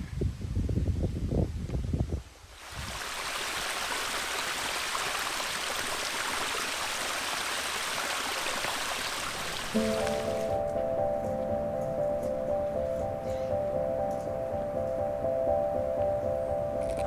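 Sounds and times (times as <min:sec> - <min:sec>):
rushing stream water: 0:02.6 - 0:10.6.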